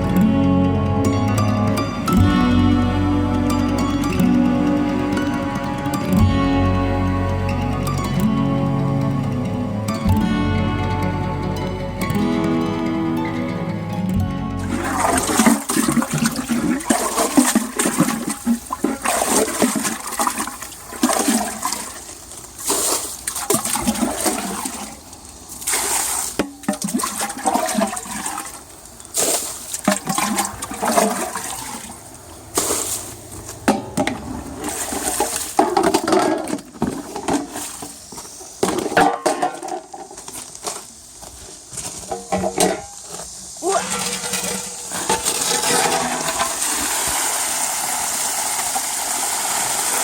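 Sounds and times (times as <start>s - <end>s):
water splashing into a jar: 14.7s - 22.0s, 25.6s - 32.0s.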